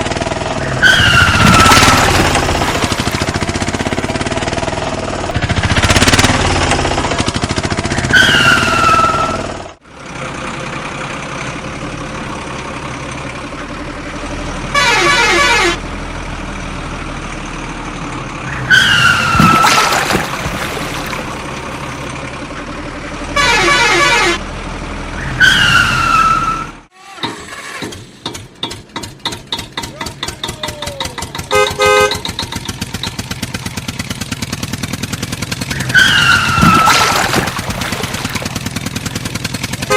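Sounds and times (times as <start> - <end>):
engine hum: 0.0 - 39.9
fast engine pulse: 0.3 - 9.7, 30.0 - 39.9
horn honks: 14.7 - 15.8, 23.3 - 24.5, 31.4 - 32.4, 39.7 - 39.9.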